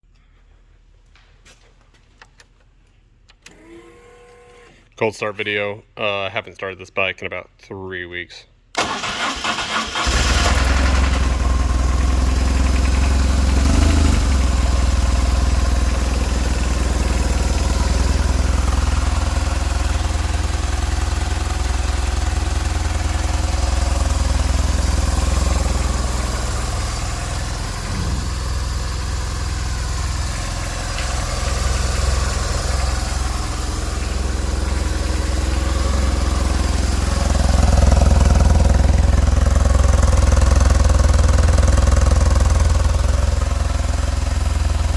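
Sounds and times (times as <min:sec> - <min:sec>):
motorcycle engine idling: 0:11.1 - 0:44.9.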